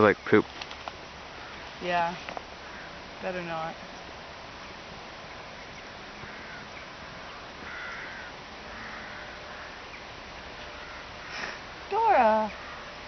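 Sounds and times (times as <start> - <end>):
steady background noise: 0.0 - 13.0
crows cawing: 1.3 - 1.8, 2.5 - 3.2, 5.9 - 10.0, 10.7 - 11.7, 12.5 - 13.0.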